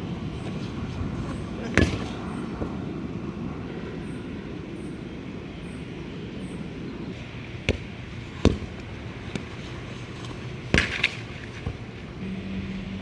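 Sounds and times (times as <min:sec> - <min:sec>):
low background rumble: 0:11.9 - 0:13.0.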